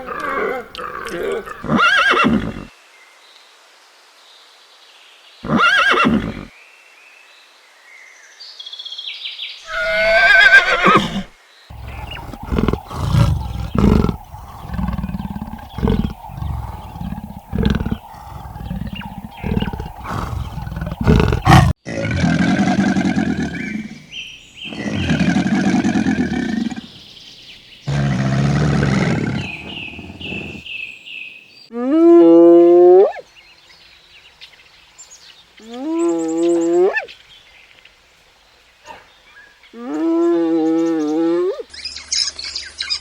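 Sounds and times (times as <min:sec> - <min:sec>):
short deep animal calls: 0:09.7 - 0:21.8
long drawn-out animal calls: 0:09.7 - 0:24.0, 0:27.9 - 0:30.6.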